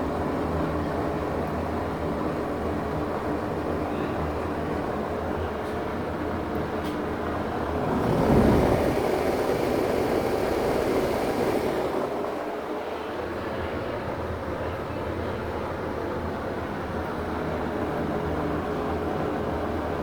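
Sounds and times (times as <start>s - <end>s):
exhaust fan running: 6.2s - 14.0s.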